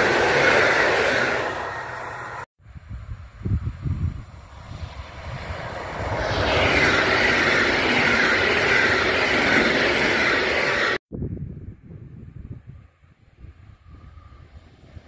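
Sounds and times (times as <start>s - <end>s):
train wheels rolling on rails: 0.0s - 2.5s, 4.4s - 11.0s
wind gusts on microphone: 2.6s - 15.0s.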